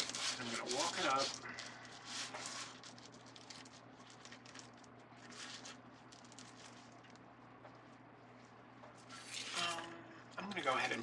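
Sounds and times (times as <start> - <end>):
plastic mesh rustling: 0.0 - 7.3
low steady hum: 0.0 - 11.0.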